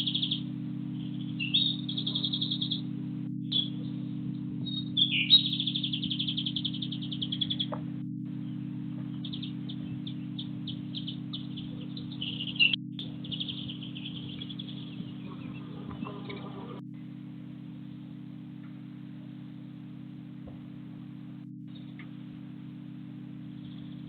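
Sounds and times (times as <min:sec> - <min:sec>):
songbird trilling: 0:00.0 - 0:04.0, 0:04.6 - 0:07.8, 0:08.4 - 0:16.8
steady low hum: 0:00.0 - 0:24.0.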